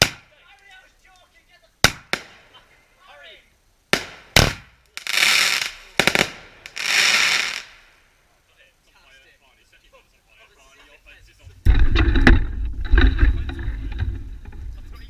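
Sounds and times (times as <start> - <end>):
fireworks crackling hiss: 0.0 - 9.0
fireworks bangs: 1.8 - 2.6, 3.9 - 8.0.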